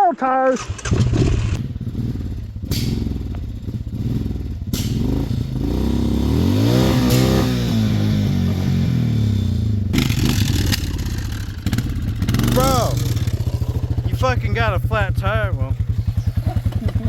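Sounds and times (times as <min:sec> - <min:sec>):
atv engine revving: 0:00.6 - 0:17.0
sharp knocks: 0:04.7 - 0:05.2.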